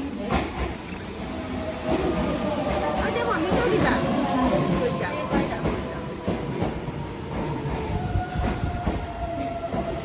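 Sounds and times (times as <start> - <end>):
train wheels clacking: 0.2 - 10.0.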